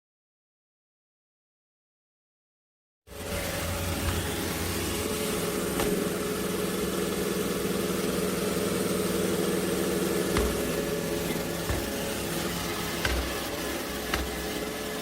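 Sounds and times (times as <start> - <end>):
robot vacuum running: 3.1 - 15.0.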